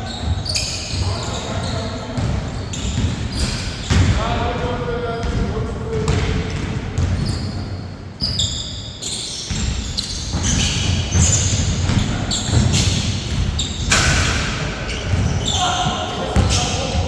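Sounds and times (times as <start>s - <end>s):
shoes squeaking on court floor: 0.0s - 4.2s, 6.0s - 17.0s
basketball bouncing: 2.2s - 7.3s, 9.5s - 17.0s.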